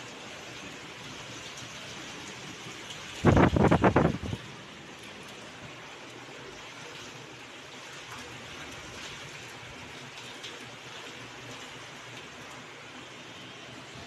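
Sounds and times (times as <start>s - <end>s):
rain falling outside window: 0.0s - 14.0s.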